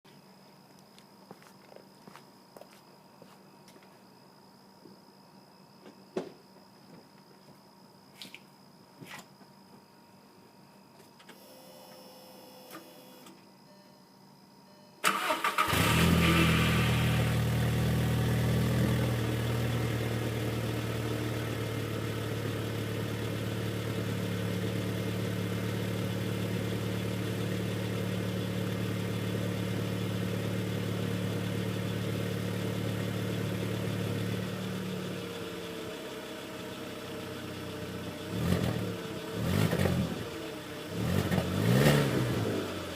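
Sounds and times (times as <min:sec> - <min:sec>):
car engine starting and idling: 0:15.0 - 0:42.9.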